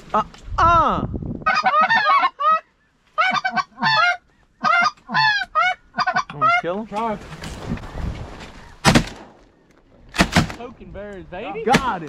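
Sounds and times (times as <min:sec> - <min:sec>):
geese honking: 0:01.5 - 0:06.8.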